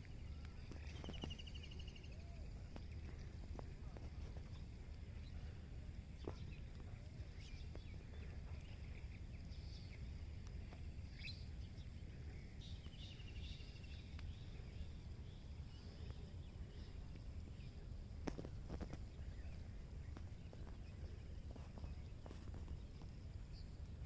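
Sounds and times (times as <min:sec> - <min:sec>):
low background rumble: 0:00.0 - 0:24.0
small birds chirping: 0:00.0 - 0:24.0.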